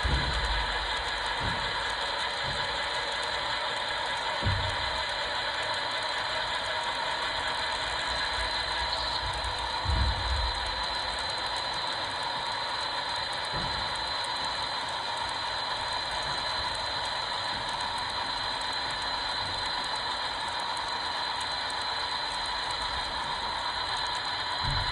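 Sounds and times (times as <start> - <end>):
low thump: 0.0 - 2.6, 24.6 - 24.9
model train whirring: 0.0 - 24.9.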